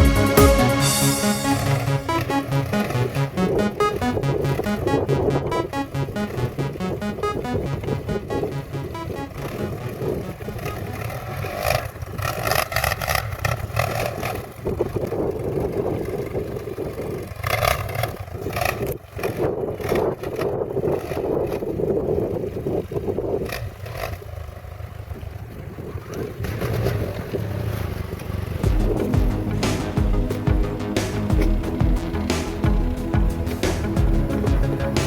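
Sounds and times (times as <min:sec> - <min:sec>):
atv engine running: 0:28.6 - 0:35.0.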